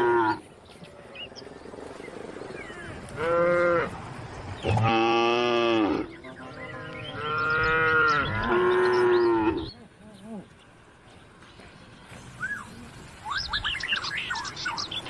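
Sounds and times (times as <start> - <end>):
cattle mooing: 0.0 - 0.4, 3.1 - 4.0, 4.6 - 9.8.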